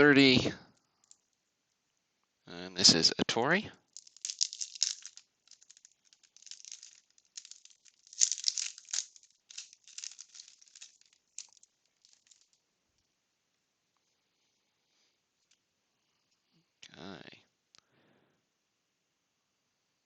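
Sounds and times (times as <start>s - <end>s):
wax-paper pack rustling: 3.9s - 12.6s.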